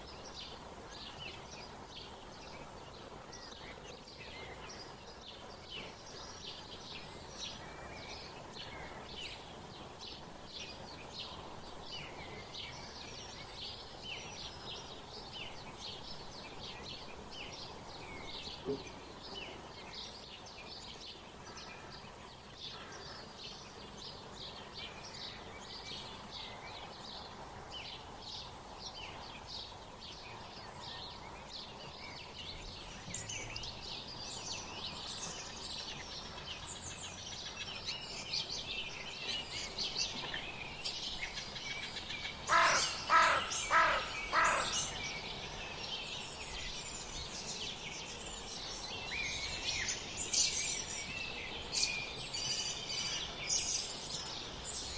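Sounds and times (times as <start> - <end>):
songbirds chirping and twittering: 0.0 - 54.9
large bird calling loudly: 41.3 - 45.8.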